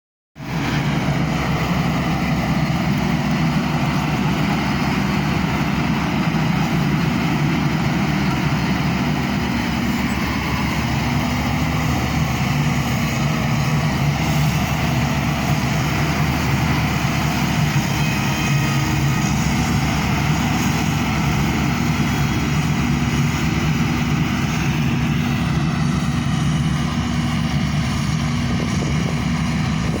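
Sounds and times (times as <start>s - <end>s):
road noise: 0.4s - 30.0s
vehicle engine drone: 0.4s - 30.0s.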